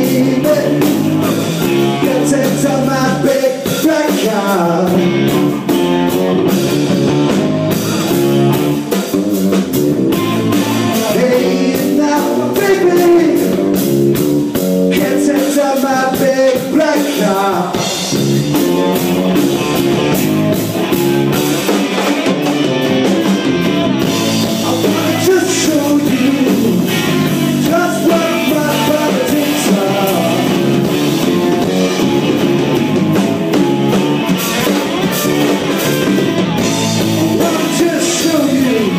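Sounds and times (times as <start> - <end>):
person singing: 0.0 - 5.5, 10.2 - 13.7, 14.9 - 18.1, 24.4 - 32.2, 37.0 - 38.9
drum kit: 0.0 - 38.9
electric guitar: 0.0 - 38.9.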